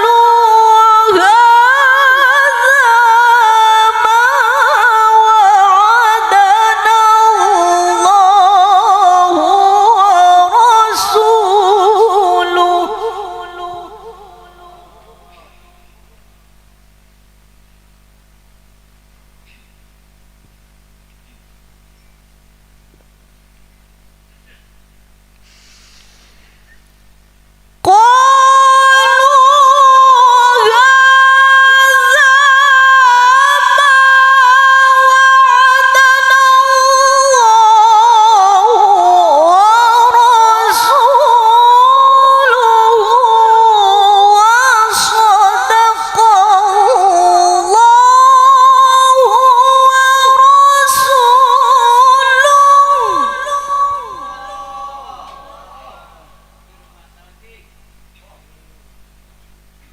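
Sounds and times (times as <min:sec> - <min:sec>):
woman reciting melodically: 0:00.0 - 0:17.1, 0:27.8 - 0:56.7.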